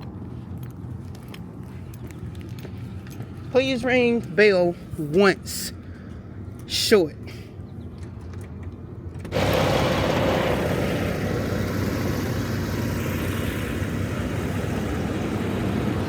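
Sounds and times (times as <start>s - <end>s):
diesel truck engine idling: 9.3s - 16.0s.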